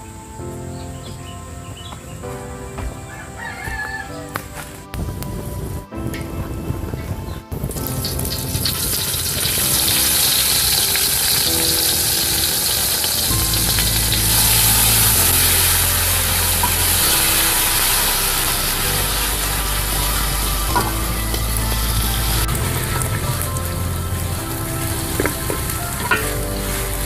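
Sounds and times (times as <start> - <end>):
background music with bass: 0.0 - 27.0
paste sizzling in hot oil: 8.1 - 27.0.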